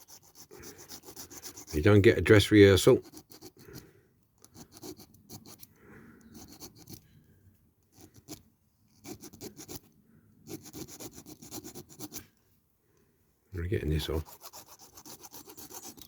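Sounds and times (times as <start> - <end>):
hand file rasping on metal: 0.0 - 2.2, 2.9 - 3.8, 4.5 - 5.7, 6.4 - 7.0, 9.0 - 12.2, 14.0 - 16.0.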